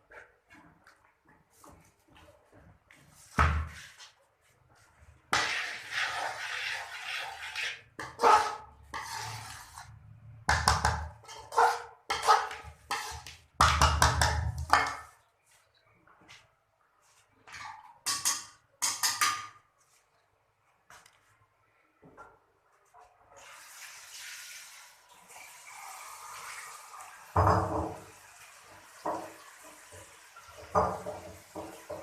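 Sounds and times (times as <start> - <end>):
metal pot scraping: 5.3 - 10.2, 10.8 - 15.2
pot clattering and knocking: 10.5 - 15.2, 17.6 - 19.6, 27.4 - 28.0, 30.6 - 32.0.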